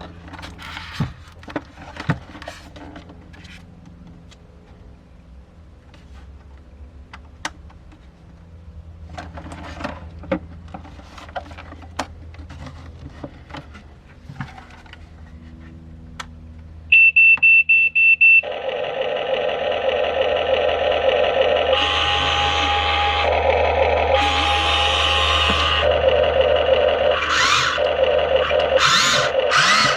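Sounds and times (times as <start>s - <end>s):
loud high beeps: 16.9s - 18.5s
small electric motors whirring: 18.4s - 29.9s
loud continuous multi-tone sound: 20.1s - 29.9s.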